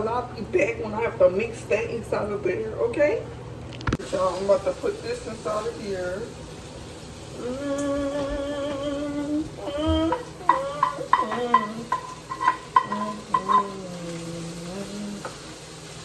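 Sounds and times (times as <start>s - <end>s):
food sizzling in a frying pan: 4.0s - 16.0s
utensil scraping a pan: 10.1s - 14.2s.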